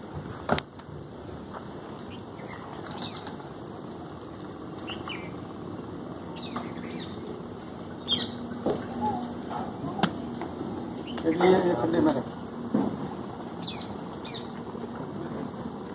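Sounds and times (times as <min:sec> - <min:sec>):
high bird chirps: 0:08.0 - 0:09.3.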